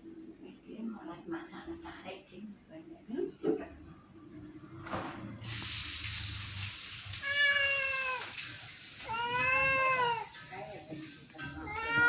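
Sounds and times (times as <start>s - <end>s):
steady hiss: 5.4s - 9.3s
cat meowing: 7.2s - 8.4s, 9.0s - 10.4s, 11.4s - 12.0s.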